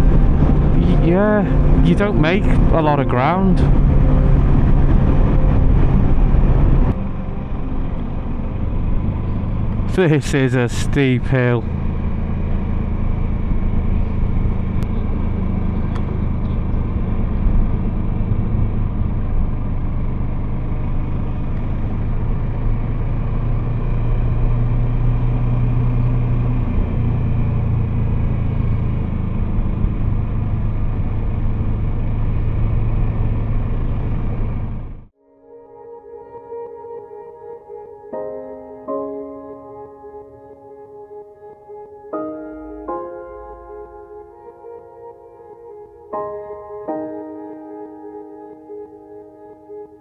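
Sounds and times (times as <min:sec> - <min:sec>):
wind rush: 0:00.0 - 0:09.9
motorcycle engine under load: 0:00.0 - 0:35.1.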